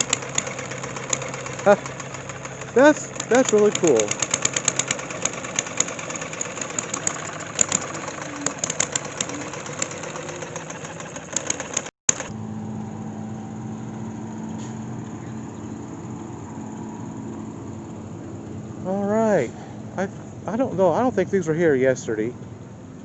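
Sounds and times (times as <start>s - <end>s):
small engine popping: 0.0s - 12.3s
steady engine hum: 0.0s - 23.0s.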